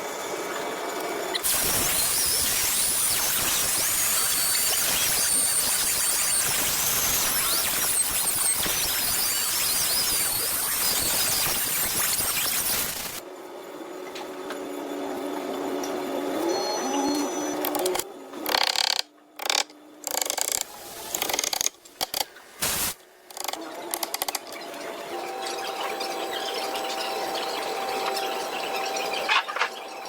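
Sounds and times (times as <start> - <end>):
power tool motor running: 1.4 - 13.2.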